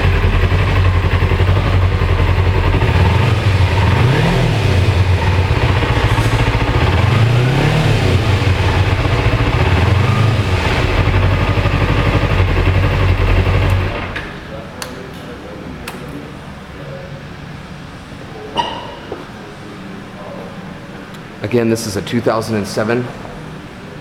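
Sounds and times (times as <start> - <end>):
motorcycle engine idling and revving: 0.0 - 14.4.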